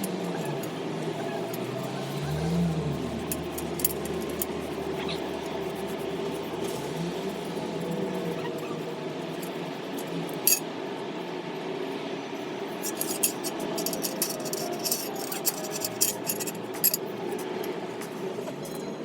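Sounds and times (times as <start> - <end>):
steady hum: 2.9 - 18.4
light metallic clinks: 12.8 - 17.7.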